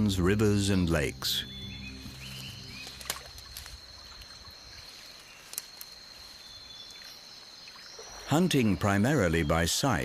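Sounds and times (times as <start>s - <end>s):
low sustained note: 0.0s - 5.0s
high insect tone: 0.0s - 10.0s
water trickling and lapping: 2.0s - 9.3s.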